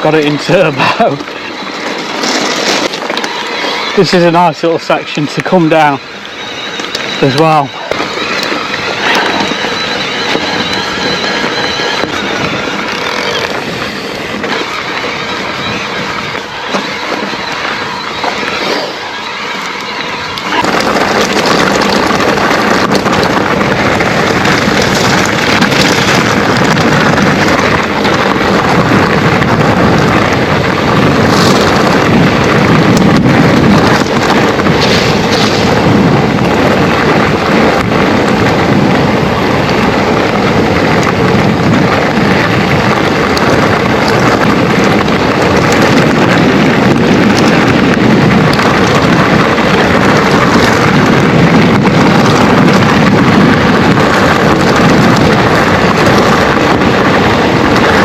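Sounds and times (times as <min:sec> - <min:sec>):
bike tyres on loose trail: 0:00.0 - 0:58.0
wind rumble on microphone: 0:00.0 - 0:58.0.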